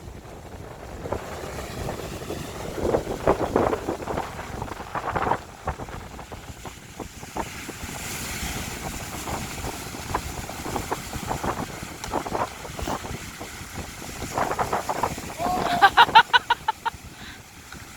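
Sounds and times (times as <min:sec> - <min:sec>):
surf on beach: 0:00.0 - 0:17.9
wind buffeting microphone: 0:00.0 - 0:17.9
wave hissing: 0:14.5 - 0:17.4.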